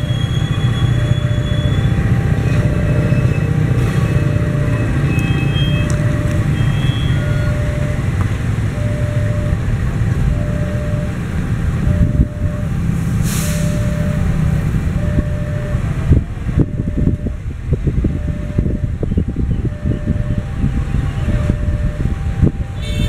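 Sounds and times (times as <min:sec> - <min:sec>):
freight train rolling rumble: 0:00.0 - 0:23.0
brief hiss: 0:13.2 - 0:13.8.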